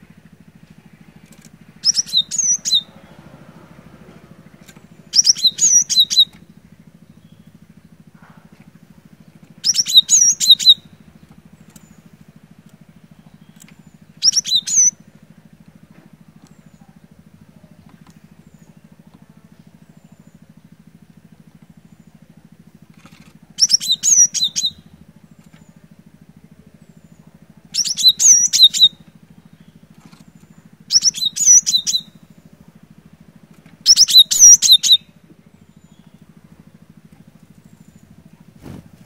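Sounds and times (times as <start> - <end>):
steady low hum: 0.0 - 39.0
bird singing high repeated notes: 1.8 - 3.0, 5.1 - 6.4, 9.6 - 10.9, 13.4 - 15.0, 27.8 - 29.0, 30.9 - 32.2, 33.8 - 36.2.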